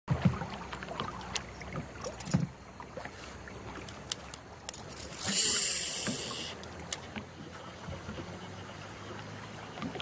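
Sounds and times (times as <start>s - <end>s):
low knocks in kayak: 0.1s - 2.6s.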